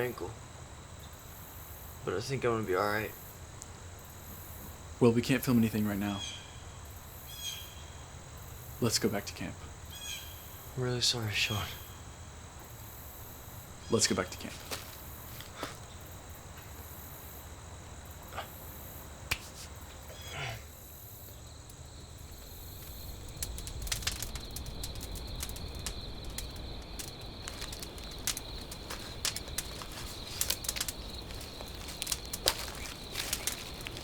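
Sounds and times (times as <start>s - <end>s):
insect chirring: 0.0s - 34.0s
clicks and rustles: 14.4s - 15.9s, 22.2s - 34.0s.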